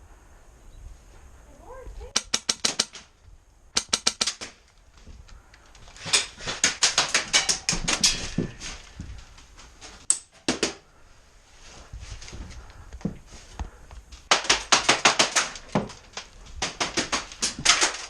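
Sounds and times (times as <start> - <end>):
airsoft gun bursts: 3.8 - 4.5.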